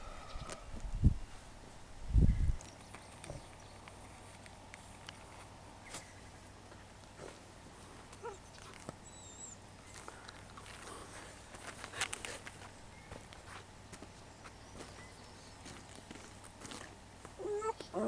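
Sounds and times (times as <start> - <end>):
light clicks and rustles: 2.6 - 9.1, 9.8 - 15.0.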